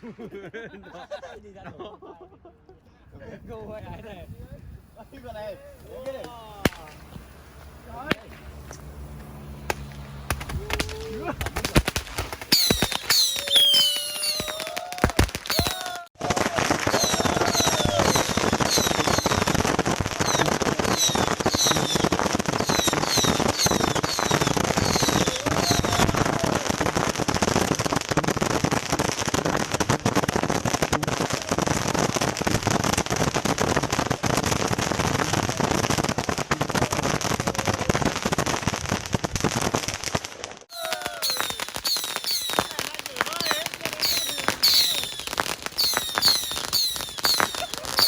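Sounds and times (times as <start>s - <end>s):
fireworks crackling and popping: 0.0s - 0.6s, 3.4s - 48.0s
high firework whistles: 4.9s - 16.1s, 16.8s - 26.6s, 40.7s - 48.0s.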